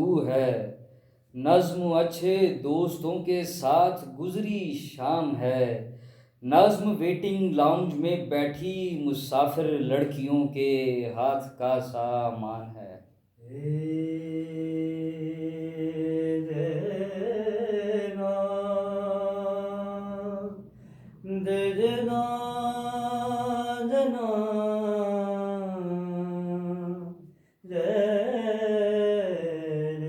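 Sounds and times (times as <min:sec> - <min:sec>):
wordless sung vocal melody: 0:00.0 - 0:30.0
singer breathing: 0:00.8 - 0:01.4, 0:05.9 - 0:06.4, 0:20.6 - 0:21.3, 0:27.2 - 0:27.7.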